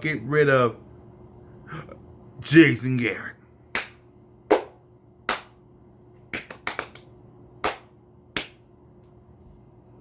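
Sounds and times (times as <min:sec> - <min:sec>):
sharp hand claps: 0:03.7 - 0:05.6, 0:06.3 - 0:08.6.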